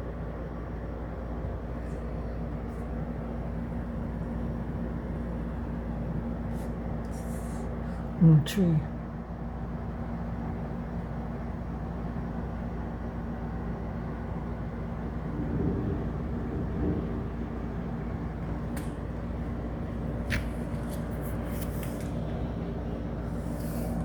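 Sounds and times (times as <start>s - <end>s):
low hum: 13.4s - 24.0s.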